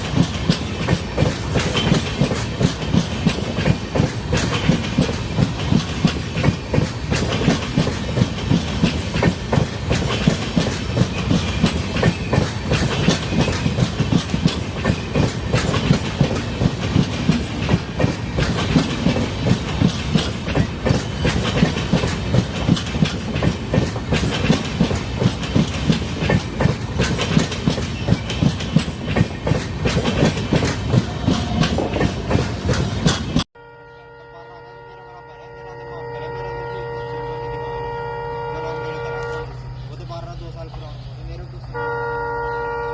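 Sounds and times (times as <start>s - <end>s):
train wheels clattering over rail joints: 0.0s - 33.5s.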